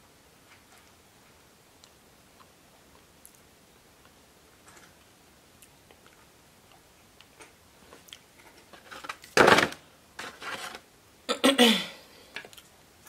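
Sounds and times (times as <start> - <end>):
quiet chewing with mouth clicks: 5.0 - 8.3.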